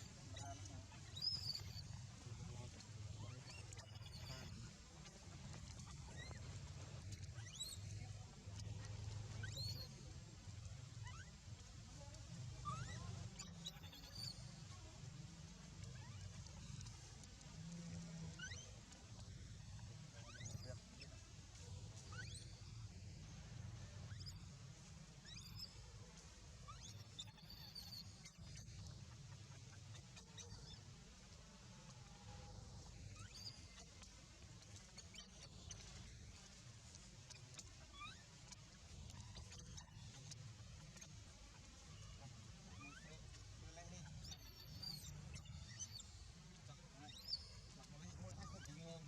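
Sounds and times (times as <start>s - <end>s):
baby monkey squealing: 0.3s - 2.0s, 3.2s - 4.6s, 7.3s - 7.8s, 9.4s - 10.0s, 11.0s - 11.3s, 12.6s - 14.4s, 18.3s - 18.7s, 20.2s - 20.8s, 22.0s - 22.6s, 24.1s - 24.5s, 25.2s - 25.8s, 26.7s - 28.6s, 33.2s - 34.0s, 37.3s - 38.4s, 39.2s - 43.4s, 44.0s - 46.2s, 46.8s - 48.8s
baby monkey crying squeaks: 1.2s - 1.8s, 9.4s - 9.9s, 12.6s - 14.4s, 25.2s - 25.7s, 26.7s - 28.4s, 33.2s - 33.8s, 44.2s - 46.1s, 47.0s - 47.5s.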